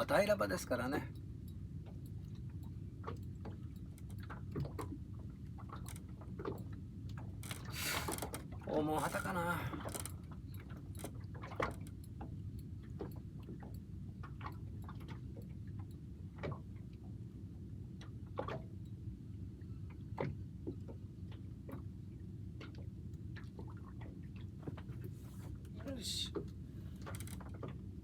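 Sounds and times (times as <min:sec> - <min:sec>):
fishing reel clicking: 0:09.9 - 0:10.2, 0:27.0 - 0:27.4.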